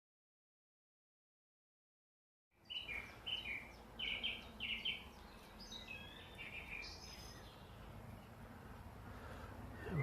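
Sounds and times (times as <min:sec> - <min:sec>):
songbird singing: 0:02.5 - 0:10.0.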